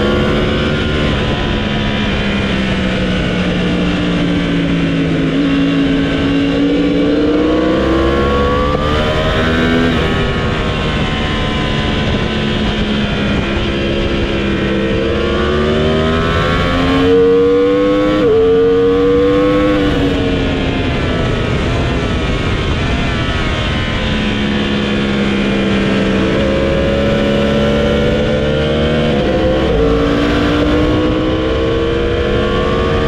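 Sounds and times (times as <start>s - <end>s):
motorcycle engine accelerating: 0.0s - 33.0s
wind noise rushing: 0.0s - 33.0s.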